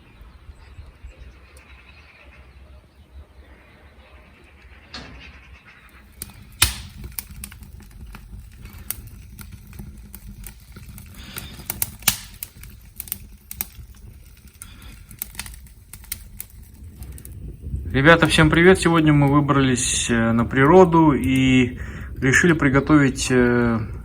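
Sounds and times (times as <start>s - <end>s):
wood fire crackling and popping: 4.9s - 24.0s.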